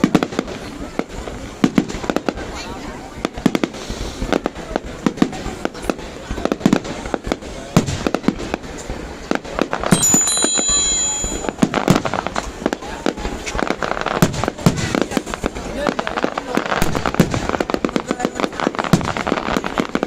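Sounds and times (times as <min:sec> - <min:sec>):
fireworks bangs and cracks: 0:00.0 - 0:20.0
high firework whistle: 0:09.9 - 0:12.0.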